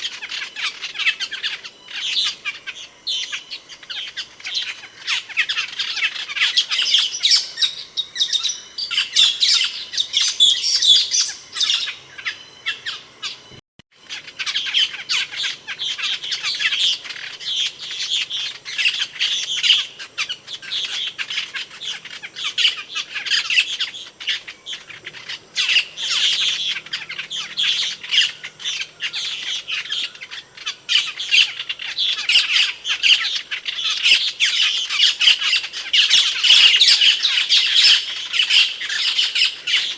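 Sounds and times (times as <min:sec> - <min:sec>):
starling chirps and squawks: 0:00.0 - 0:39.9.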